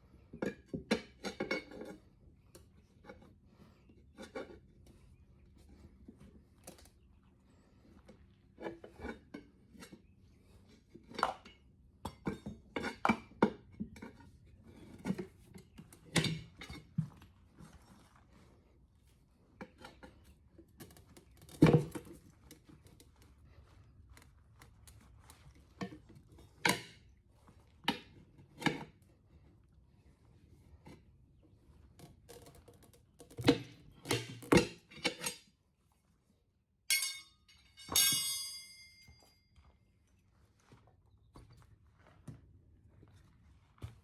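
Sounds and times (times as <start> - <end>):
metal tools clanking on wheel rim: 33.5 - 35.5, 36.9 - 39.5.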